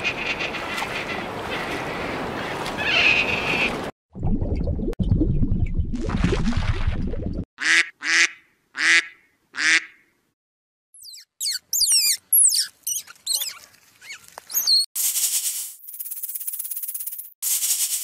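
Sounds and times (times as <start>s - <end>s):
squirrel squeaks and chirps: 11.0s - 14.9s
snake hissing: 17.4s - 18.0s.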